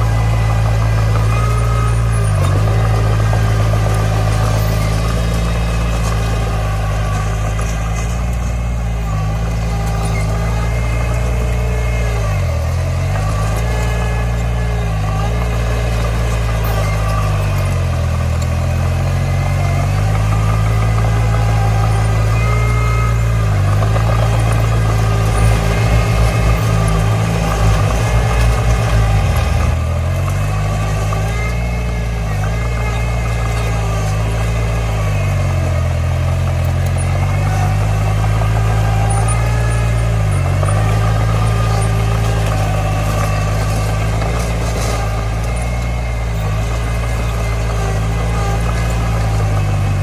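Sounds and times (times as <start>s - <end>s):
heavy diesel engine running: 0.0s - 50.0s.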